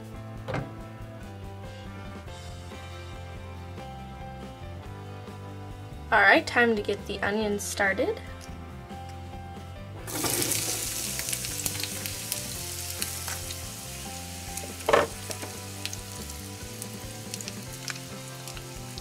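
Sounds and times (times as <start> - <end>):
onions sizzling in oil: 10.1 - 19.0.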